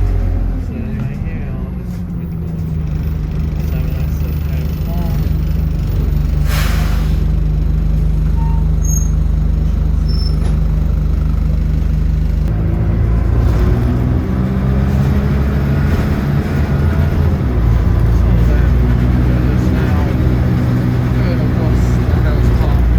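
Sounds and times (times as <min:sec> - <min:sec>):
bus engine running: 0:00.0 - 0:22.9
air brake hiss: 0:06.4 - 0:07.3.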